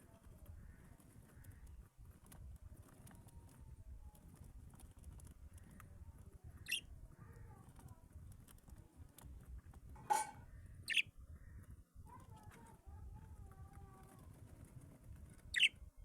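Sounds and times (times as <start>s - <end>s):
birds chirping: 5.6s - 8.0s, 10.0s - 12.4s, 15.4s - 15.8s.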